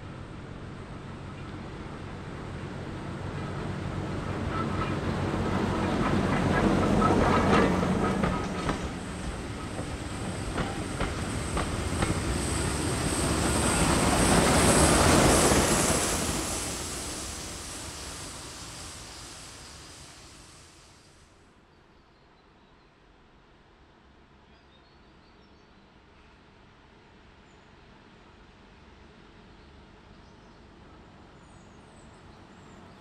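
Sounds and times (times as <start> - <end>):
diesel locomotive engine: 0.0 - 21.4.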